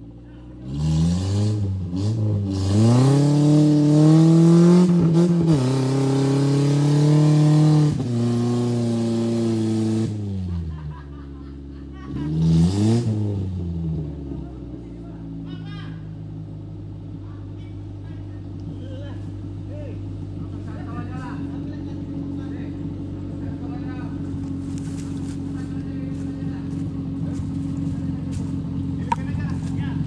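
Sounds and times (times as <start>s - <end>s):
car engine revving hard: 0.6s - 10.5s, 12.2s - 14.0s.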